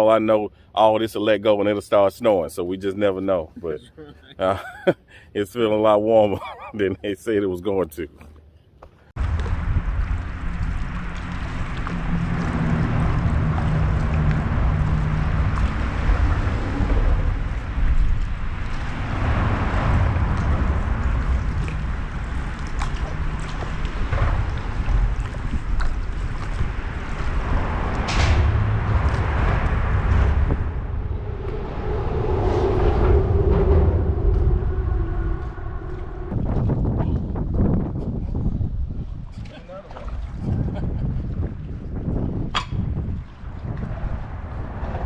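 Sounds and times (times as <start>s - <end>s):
water sloshing and splashing: 8.1s - 45.0s
wind buffeting microphone: 9.2s - 45.0s.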